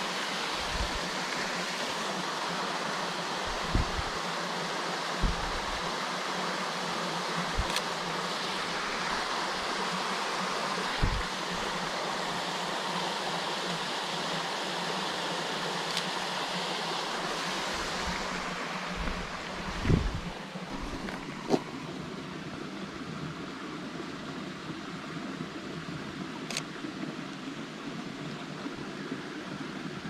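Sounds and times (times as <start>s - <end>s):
waterfall rushing: 0.0s - 22.9s
low thumps: 3.5s - 4.2s, 5.2s - 5.8s, 11.0s - 11.3s.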